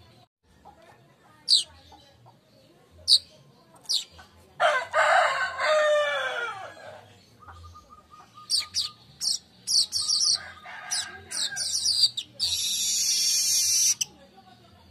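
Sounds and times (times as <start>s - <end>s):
rooster crowing: 4.6s - 7.0s, 10.3s - 11.7s
high bird chips: 8.6s - 14.1s.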